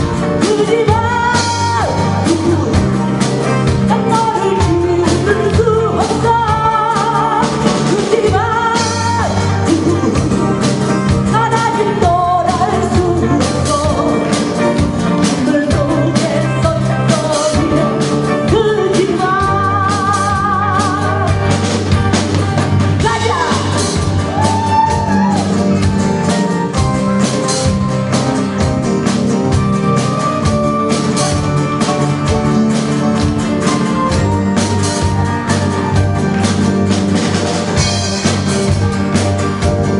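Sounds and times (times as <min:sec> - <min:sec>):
bass: 0:00.0 - 0:39.9
drum kit beat: 0:00.0 - 0:39.9
person singing with vibrato: 0:03.8 - 0:21.6, 0:22.9 - 0:25.8.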